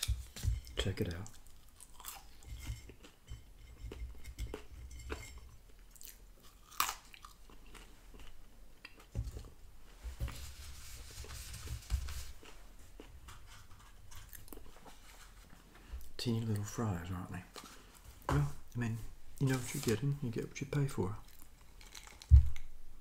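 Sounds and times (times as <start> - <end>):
chewing and crunching fries: 1.2 - 3.2, 5.8 - 9.1, 12.4 - 13.2, 21.2 - 22.7
soft rustle: 9.8 - 16.2, 17.3 - 20.3.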